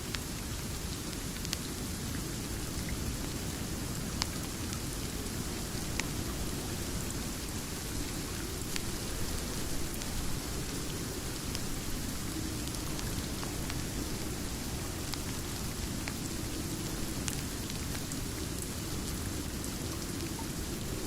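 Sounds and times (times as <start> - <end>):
steady rain hiss: 0.0 - 21.0.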